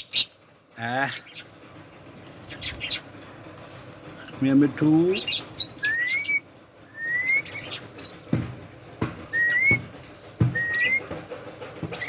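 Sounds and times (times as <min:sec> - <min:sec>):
parakeet chirps: 0:07.3 - 0:08.2
soft knocks: 0:08.2 - 0:12.0.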